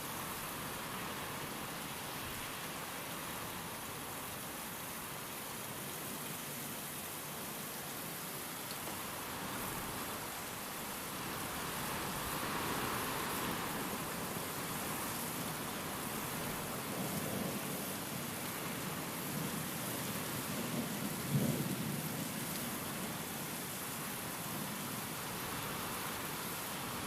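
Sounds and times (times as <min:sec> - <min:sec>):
steady rain falling: 0:00.0 - 0:27.0
wind: 0:00.0 - 0:27.0
low rumble of thunder: 0:20.3 - 0:22.4.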